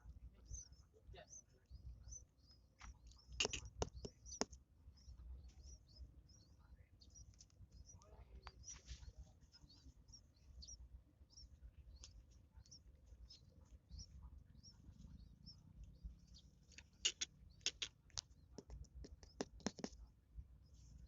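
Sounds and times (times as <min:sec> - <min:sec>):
nestlings begging chirps: 0:00.4 - 0:20.0
sharp clicks: 0:02.8 - 0:04.6, 0:16.7 - 0:20.0.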